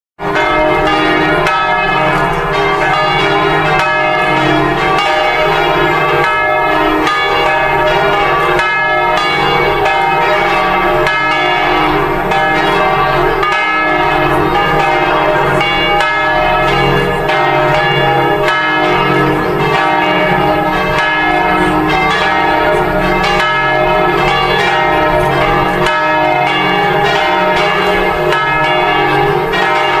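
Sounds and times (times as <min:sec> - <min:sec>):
church bells ringing: 0:00.2 - 0:30.0.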